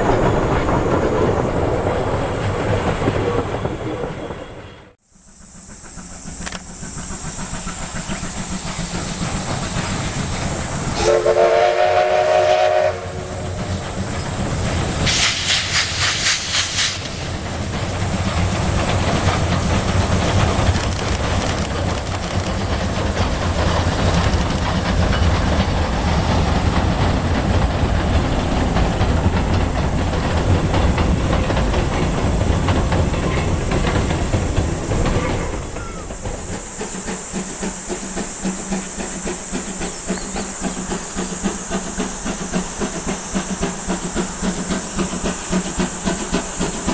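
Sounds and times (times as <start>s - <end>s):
steam hissing: 0.0s - 46.9s
train rumble and rail clatter: 0.0s - 46.9s
steam whistle blast: 10.9s - 13.6s.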